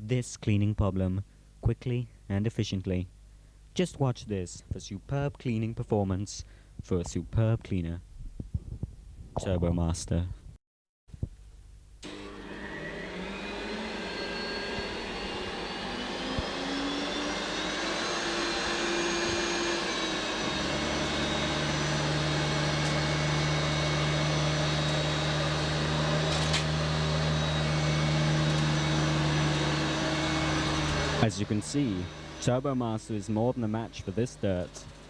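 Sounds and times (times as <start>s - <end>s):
vacuum cleaner motor whine: 12.0s - 35.0s.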